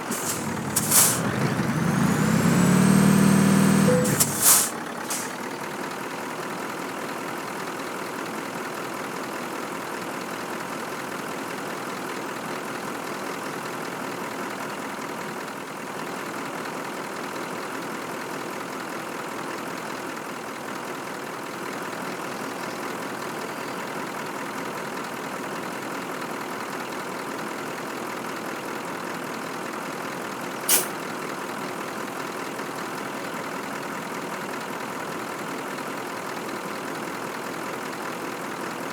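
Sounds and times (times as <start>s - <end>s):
truck diesel engine running: 0.0s - 7.7s
sharp air hiss: 0.1s - 2.6s, 3.7s - 5.4s, 30.7s - 31.0s.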